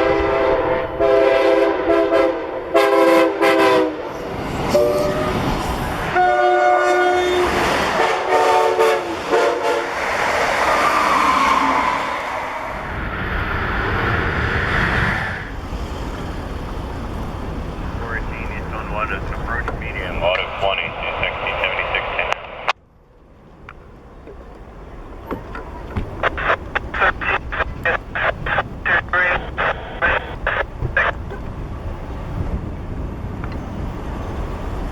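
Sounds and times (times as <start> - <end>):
locomotive air horn blasts: 0.0 - 4.0, 4.7 - 5.4, 6.1 - 9.9
passing train rushing: 0.0 - 34.9.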